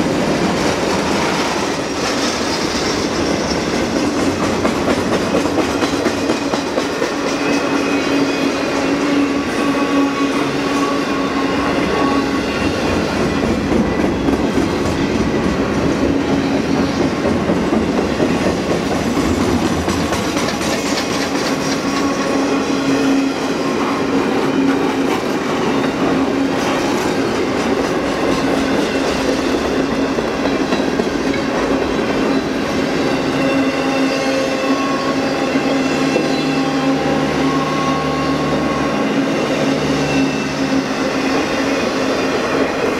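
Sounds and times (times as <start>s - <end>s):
freight train wheels clattering on rail: 0.0s - 42.9s.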